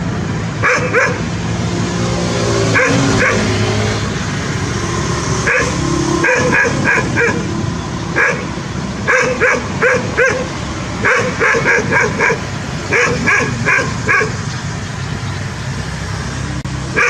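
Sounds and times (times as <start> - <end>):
dog barking: 0.6 - 1.2, 2.8 - 3.5, 5.4 - 7.5, 8.2 - 14.4.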